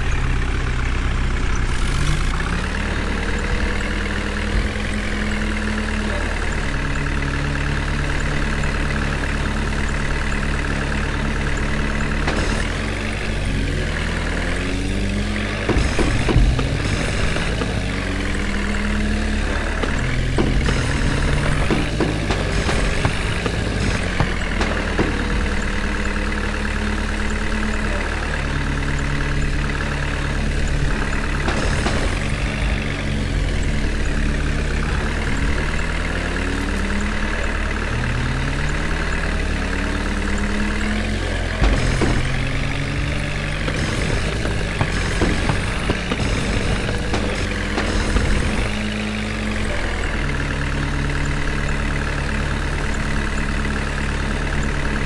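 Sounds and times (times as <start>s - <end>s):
diesel engine revving: 0.0s - 55.0s.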